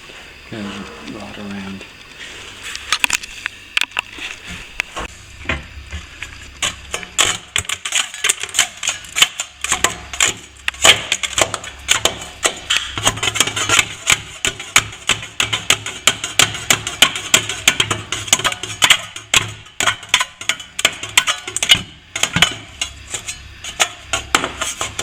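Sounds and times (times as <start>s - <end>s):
hand tool scraping plaster: 19.8s - 25.0s.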